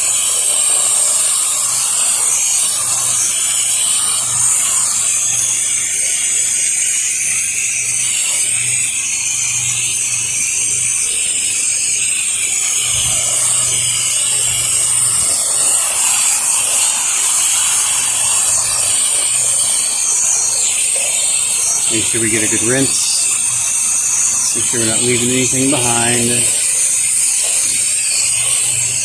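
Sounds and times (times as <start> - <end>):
pressure washer spray hissing: 10.8 - 29.0.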